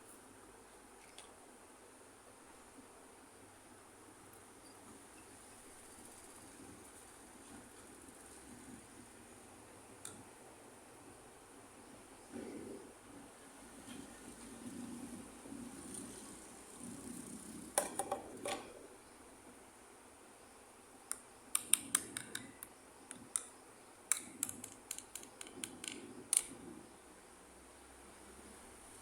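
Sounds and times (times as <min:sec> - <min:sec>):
plastic toy pieces clicking: 0:21.6 - 0:22.5, 0:24.1 - 0:26.6.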